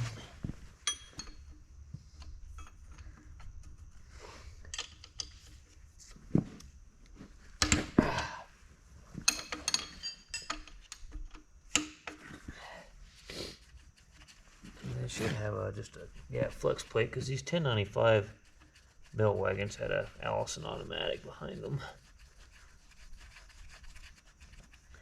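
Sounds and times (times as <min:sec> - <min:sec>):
hand tools clinking on metal: 0:00.8 - 0:01.6, 0:09.3 - 0:11.0.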